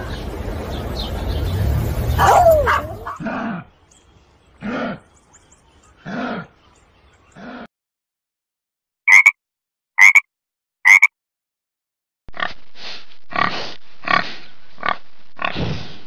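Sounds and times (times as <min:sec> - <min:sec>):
wild boar grunting: 0:02.1 - 0:03.8, 0:04.6 - 0:05.1, 0:06.0 - 0:06.6, 0:07.4 - 0:07.7, 0:13.3 - 0:15.9
frog croaking: 0:09.1 - 0:09.4, 0:10.0 - 0:10.3, 0:10.9 - 0:11.1.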